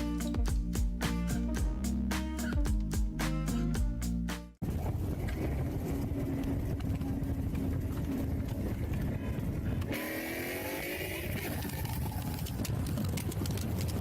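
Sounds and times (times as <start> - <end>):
music: 0.0 - 4.6
rising engine-like whine: 4.6 - 12.7
car road and engine noise: 4.6 - 14.0.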